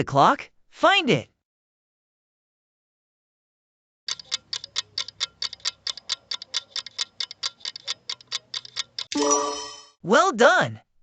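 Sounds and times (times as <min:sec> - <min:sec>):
fast clock ticking: 0:04.1 - 0:09.2.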